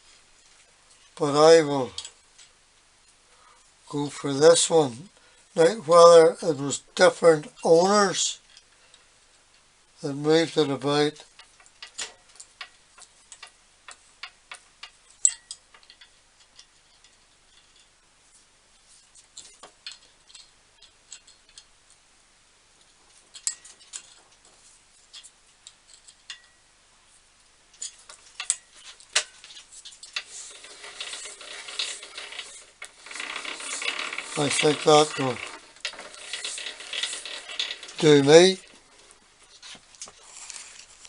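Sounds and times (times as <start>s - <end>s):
rasping turning sound: 29.5s - 41.0s.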